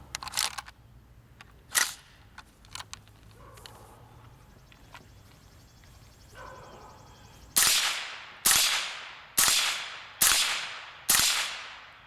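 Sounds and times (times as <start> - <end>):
suppressed rifle shots: 7.6 - 11.9.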